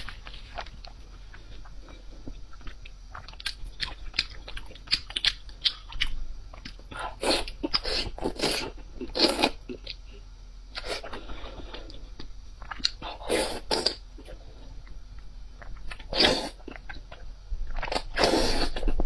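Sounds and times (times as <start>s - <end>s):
chewing crisp food: 0.0s - 10.1s, 10.8s - 14.4s.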